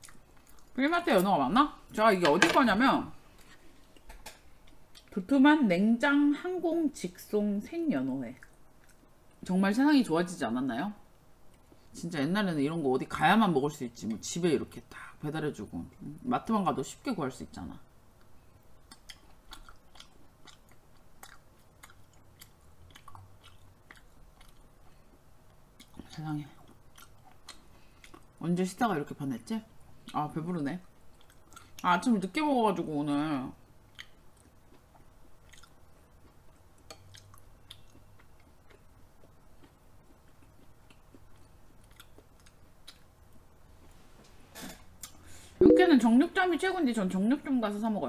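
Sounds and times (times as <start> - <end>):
wet chewing mouth sounds: 8.4 - 9.4, 18.2 - 28.4, 33.9 - 43.4.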